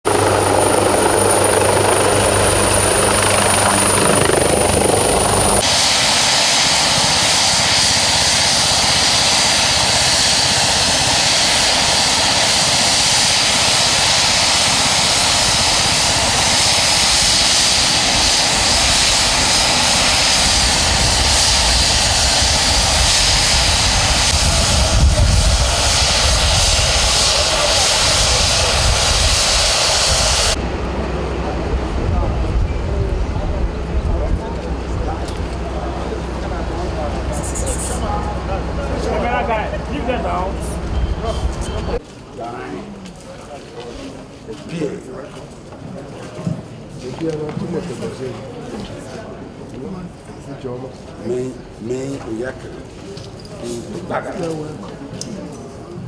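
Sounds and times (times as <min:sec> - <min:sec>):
helicopter engine and rotor noise: 0:00.1 - 0:42.0.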